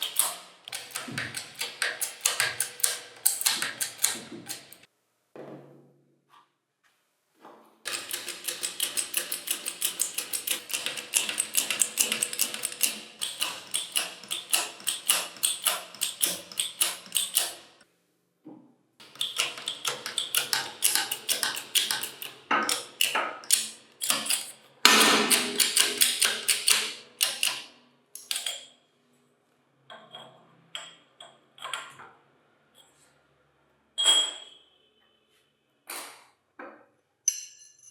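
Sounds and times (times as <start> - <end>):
ratchet wrench clicking: 7.9 - 17.7.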